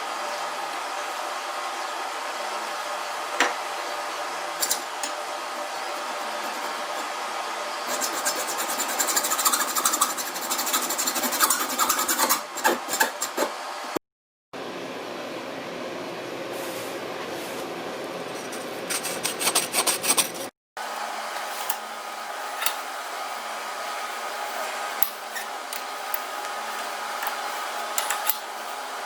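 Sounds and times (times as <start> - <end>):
rasping scrapes on copper pipe: 5.8 - 7.1, 7.9 - 13.6, 21.3 - 29.0
steady hiss: 20.8 - 29.0.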